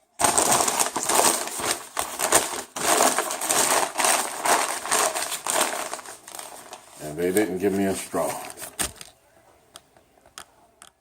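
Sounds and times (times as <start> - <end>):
paper bag rustling: 0.1 - 9.1.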